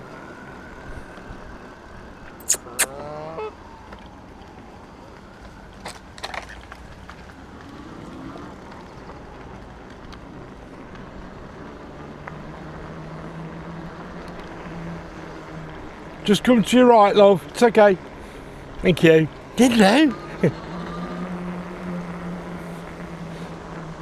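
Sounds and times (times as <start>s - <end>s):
bike tyres rolling: 3.8s - 19.6s.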